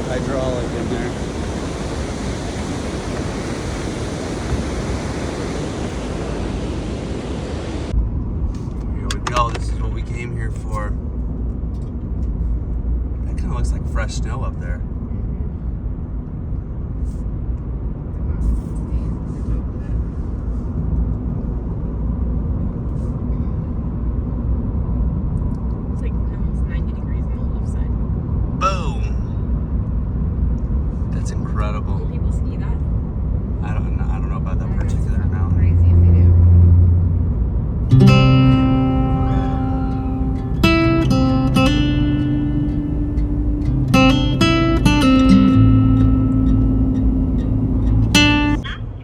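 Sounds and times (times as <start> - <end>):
rushing whitewater: 0.0 - 7.9
truck road and engine rumble: 0.0 - 49.0.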